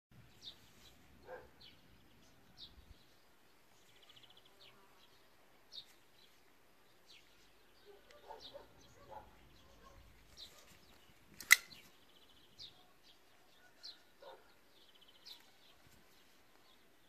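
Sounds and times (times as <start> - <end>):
small birds chirping: 0.1 - 17.0.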